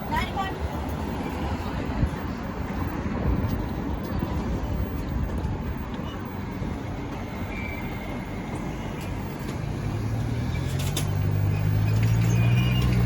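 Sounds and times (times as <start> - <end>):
street traffic rumbling: 0.0 - 13.0
vehicle engine approaching: 6.8 - 13.0.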